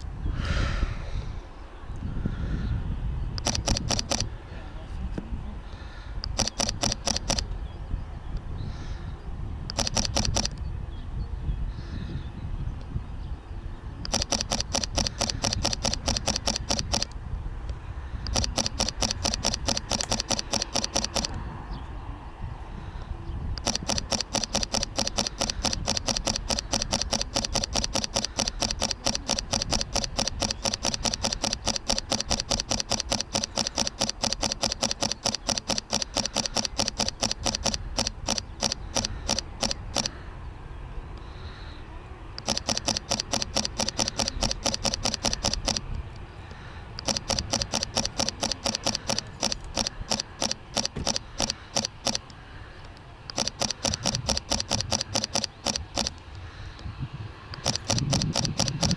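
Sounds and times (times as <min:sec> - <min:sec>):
camera shutter clicking: 0:03.4 - 0:04.3, 0:06.2 - 0:07.5, 0:09.7 - 0:10.7, 0:14.1 - 0:17.2, 0:18.3 - 0:21.4, 0:23.6 - 0:40.2, 0:42.4 - 0:56.9, 0:57.5 - 0:58.9.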